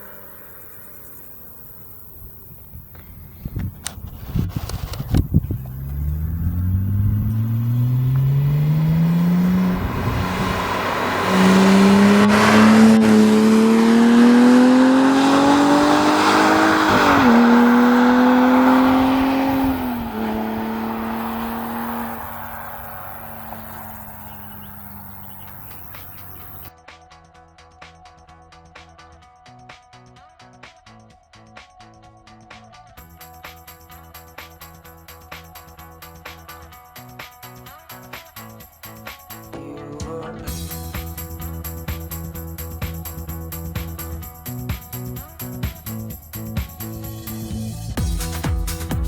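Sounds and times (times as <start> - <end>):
sports car accelerating hard: 5.2 - 26.7.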